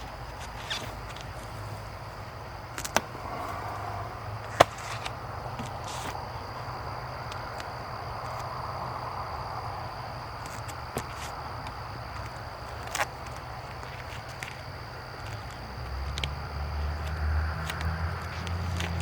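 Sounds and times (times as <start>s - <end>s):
faint high steady tone: 3.0s - 5.6s.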